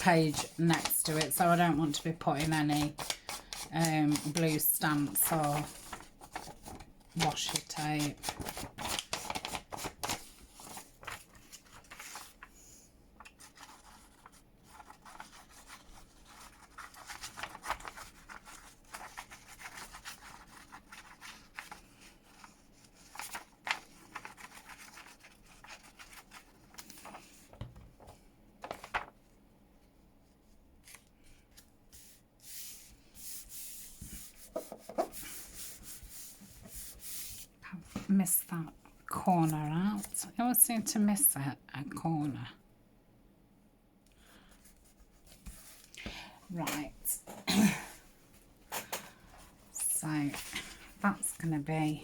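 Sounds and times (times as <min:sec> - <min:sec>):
scratchy paper rustling: 0:00.0 - 0:29.2, 0:30.4 - 0:38.1, 0:49.6 - 0:52.0.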